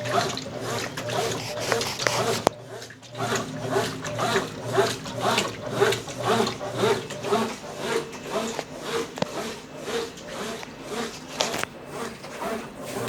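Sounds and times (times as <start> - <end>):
washing machine churning water: 0.0 - 13.0.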